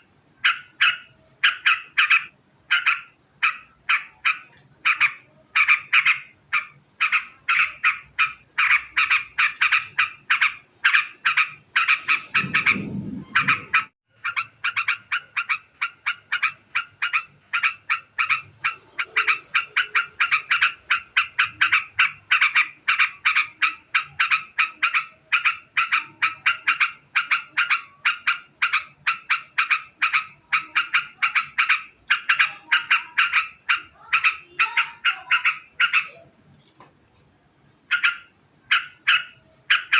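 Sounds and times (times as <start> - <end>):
bird singing fast chattering song: 0.0 - 36.1
low rumble: 12.1 - 13.9.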